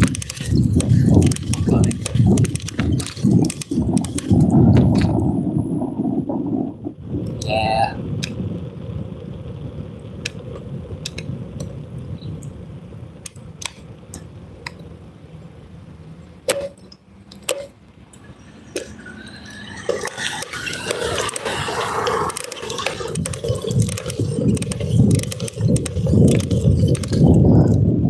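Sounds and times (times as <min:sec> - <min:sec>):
sharp clicks and knocks: 0:00.0 - 0:05.2, 0:10.2 - 0:11.8, 0:16.5 - 0:19.0, 0:22.1 - 0:27.8
steady low rumble: 0:00.0 - 0:28.0.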